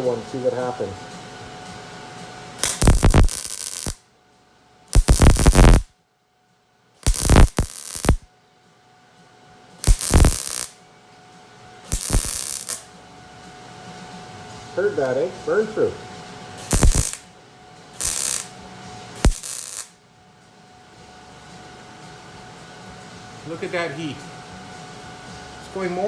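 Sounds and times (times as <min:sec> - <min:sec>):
welding arc crackling: 0:02.6 - 0:04.0, 0:04.9 - 0:05.9, 0:07.0 - 0:08.3, 0:09.8 - 0:10.7, 0:11.9 - 0:12.9, 0:16.6 - 0:17.3, 0:18.0 - 0:18.5, 0:19.2 - 0:19.9.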